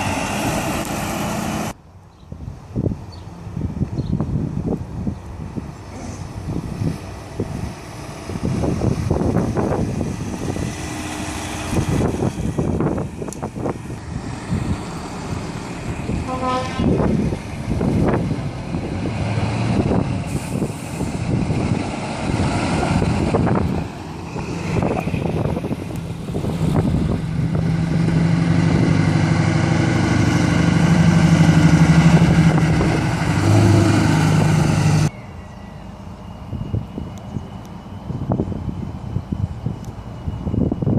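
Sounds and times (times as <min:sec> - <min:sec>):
lorries driving past: 0:00.0 - 0:40.9
short horn toot: 0:16.2 - 0:17.0
low air horn blast: 0:16.2 - 0:17.1.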